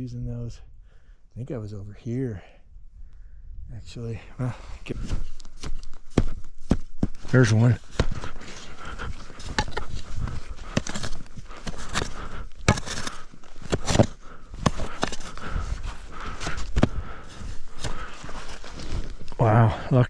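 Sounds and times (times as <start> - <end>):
footsteps crunching in snow: 4.8 - 19.4
hands digging in snow: 4.8 - 19.4.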